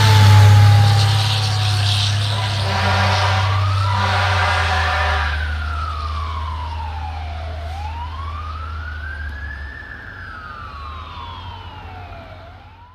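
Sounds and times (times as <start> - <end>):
low engine rumble: 0.0 - 8.4
fire engine siren wailing: 0.0 - 12.9.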